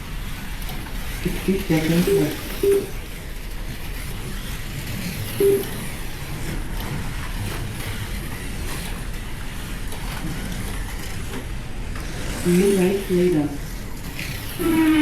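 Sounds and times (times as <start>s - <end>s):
slot car motors whirring: 0.0s - 15.0s
short tone: 5.4s - 5.7s.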